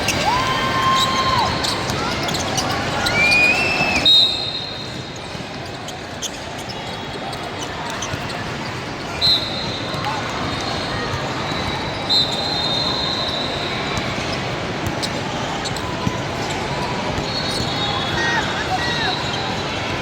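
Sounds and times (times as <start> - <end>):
sneakers squeaking on court: 0.8 - 19.6
whistle blasts: 3.2 - 5.0, 9.2 - 9.8, 11.6 - 13.7.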